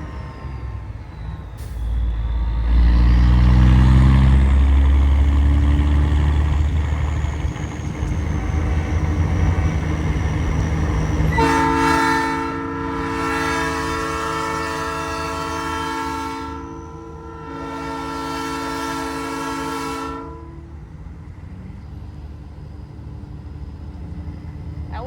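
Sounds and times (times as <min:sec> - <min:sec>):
diesel truck engine rumbling: 0:00.0 - 0:25.0
air horn chord: 0:11.3 - 0:20.7.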